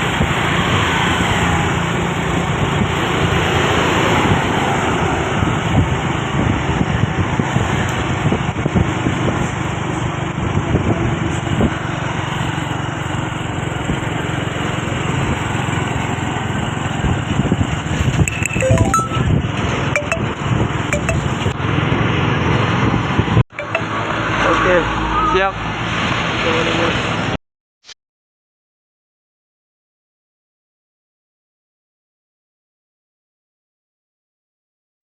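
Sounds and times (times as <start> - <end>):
road noise of vehicles: 0.0 - 18.5, 19.3 - 27.4.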